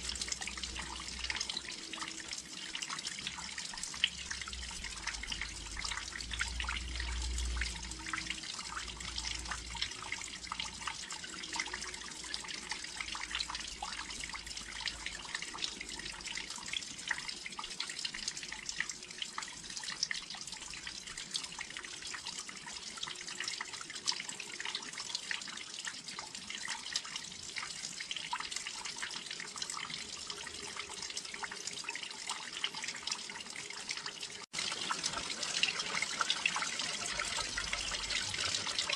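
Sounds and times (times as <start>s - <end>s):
drops ticking and dripping: 0.0s - 38.9s
rain falling: 34.5s - 38.9s.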